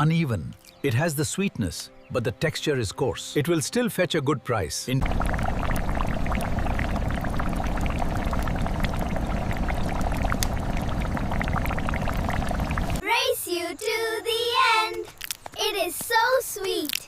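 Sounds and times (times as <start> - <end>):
liquid pouring: 5.0 - 13.0
low rumble: 5.0 - 13.0
small crackling splashes: 5.0 - 13.0.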